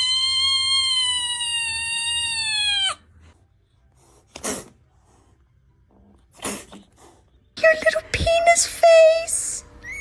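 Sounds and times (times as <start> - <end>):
kitten yowling: 0.0 - 3.0
kitten hissing: 4.3 - 4.8, 6.3 - 7.2.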